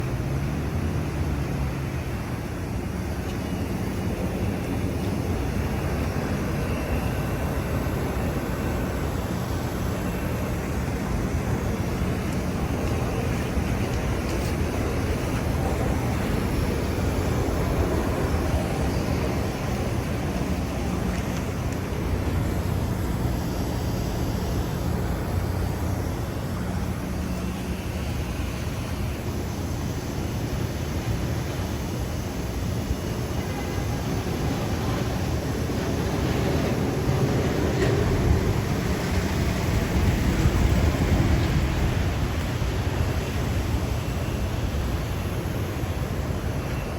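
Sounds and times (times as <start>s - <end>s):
faint steady whine: 0.0s - 46.9s
heat pump fan and compressor: 0.0s - 46.9s.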